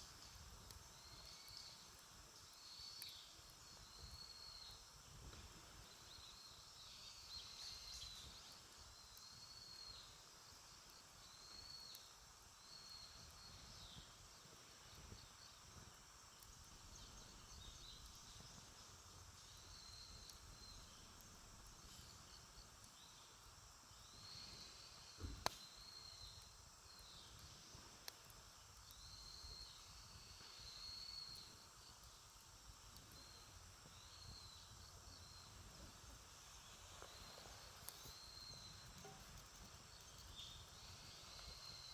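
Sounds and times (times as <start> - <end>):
campfire crackling: 0.0 - 41.9
sharp pop from fire: 25.2 - 25.8.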